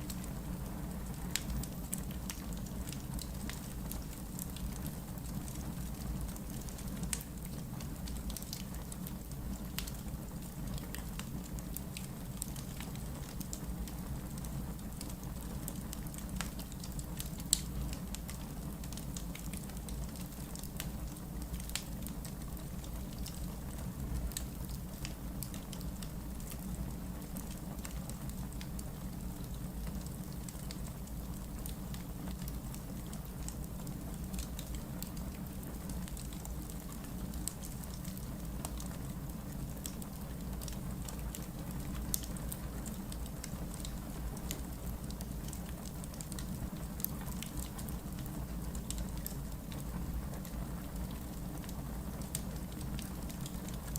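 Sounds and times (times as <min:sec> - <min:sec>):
fire crackling and popping: 0:00.0 - 0:53.9
fire rumbling: 0:00.1 - 0:53.9.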